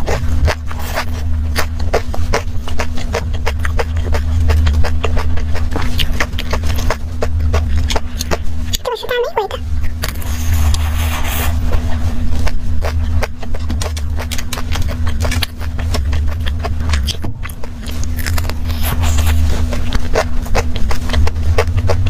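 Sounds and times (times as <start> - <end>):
crisp chewing crunches: 0.0 - 22.0
steady low hum: 0.0 - 22.0.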